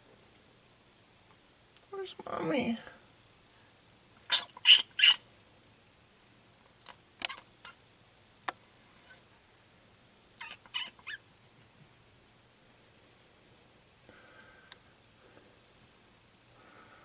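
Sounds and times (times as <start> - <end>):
baby raccoons chirping: 4.3 - 5.3, 10.4 - 11.3.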